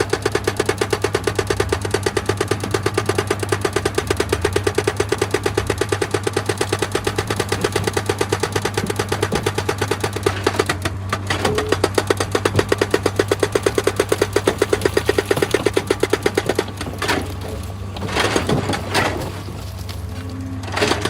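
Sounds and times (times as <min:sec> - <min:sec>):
diesel engine drone: 0:00.0 - 0:21.0
hydraulic rock breaker hammering: 0:00.0 - 0:21.0
rough rasping noises: 0:04.2 - 0:21.0.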